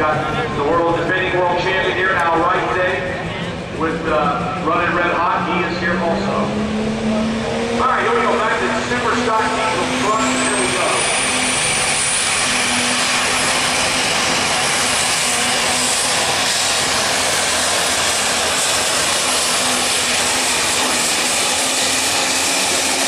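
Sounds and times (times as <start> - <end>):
diesel engine at full throttle: 0.0 - 23.0
turbocharger whistle: 5.4 - 23.0.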